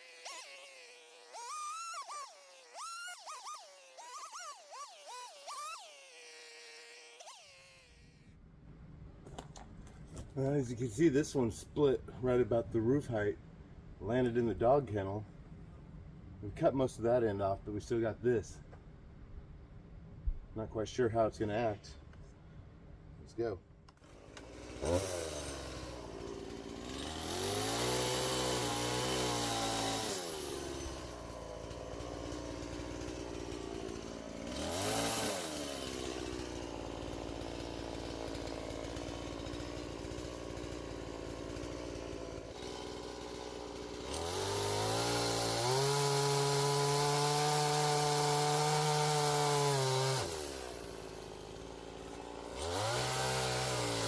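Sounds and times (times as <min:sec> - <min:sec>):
chainsaw revving: 0:00.0 - 0:08.2, 0:24.0 - 0:54.0.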